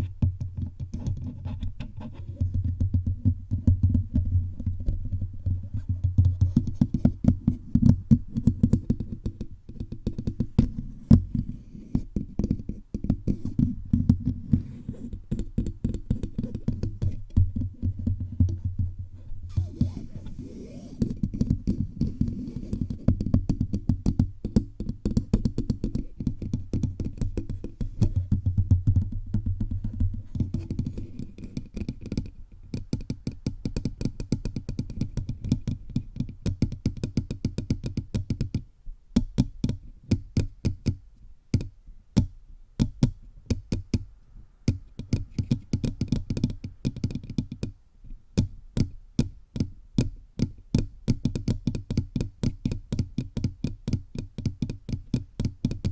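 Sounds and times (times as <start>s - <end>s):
fingertips tapping on microphone: 0.0s - 38.6s, 44.7s - 47.8s.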